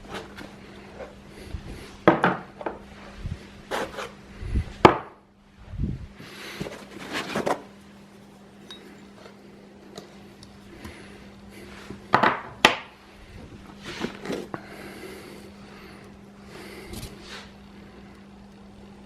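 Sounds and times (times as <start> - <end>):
faint steady hum: 0.0 - 19.0
rubbing handling noise: 2.8 - 4.2.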